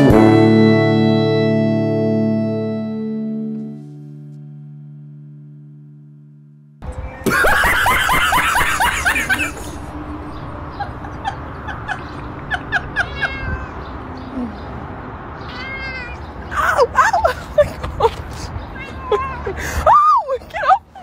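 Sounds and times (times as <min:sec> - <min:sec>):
cat meowing and chirping: 0:12.7 - 0:14.0, 0:15.4 - 0:16.5.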